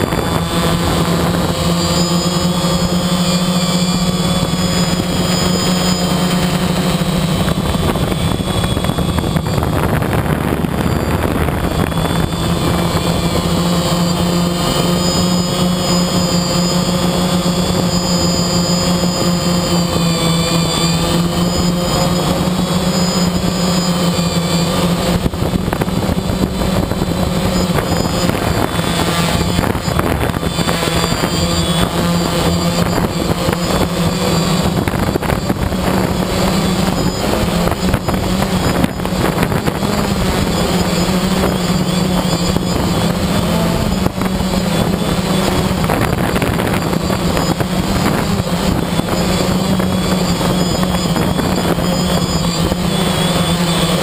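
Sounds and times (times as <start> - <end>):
quadcopter motors buzzing: 0.0 - 54.0.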